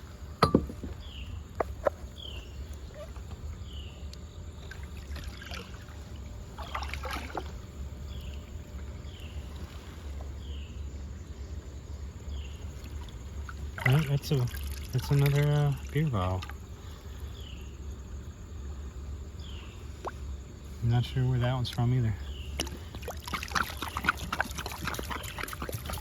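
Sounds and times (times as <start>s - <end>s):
water sloshing around a kayak: 0.0s - 26.0s
sharp knocks: 0.4s - 1.0s
water splashing: 4.6s - 9.9s, 12.7s - 16.6s, 21.0s - 26.0s.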